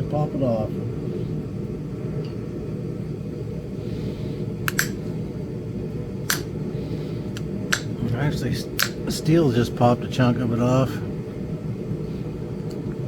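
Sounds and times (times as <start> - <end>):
steady low hum: 0.0 - 13.0
steel tool clicking on stone: 4.7 - 5.0, 6.3 - 6.5, 8.8 - 9.0.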